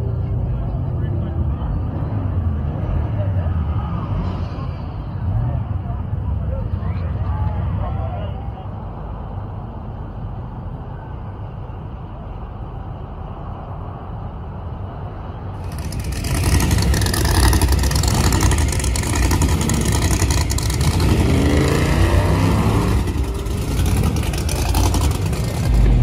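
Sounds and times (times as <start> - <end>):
car engine rumbling: 0.0 - 26.0
loud drag car engines: 0.0 - 26.0
engine popping: 15.6 - 26.0.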